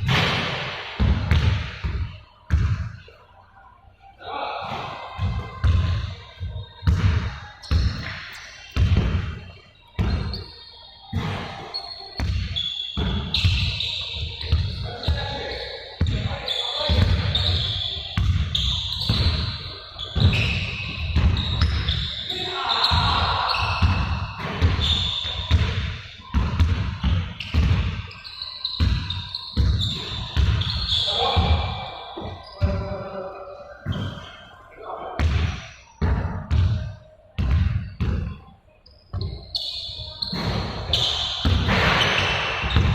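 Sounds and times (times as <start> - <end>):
shoe squeaks: 4.8 - 34.7, 37.8 - 42.9
ball bouncing on a hard floor: 40.2 - 42.9.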